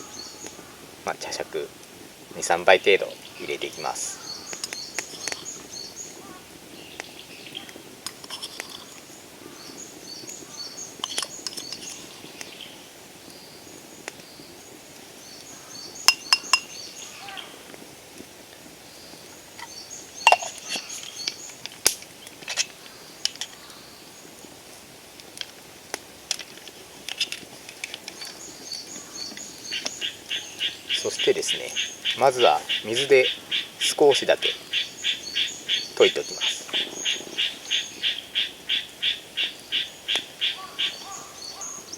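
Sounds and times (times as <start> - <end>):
high chirping: 15.4 - 17.3, 19.6 - 21.6
tea scoop clinking on ceramic bowl: 16.1 - 16.7, 20.3 - 20.8.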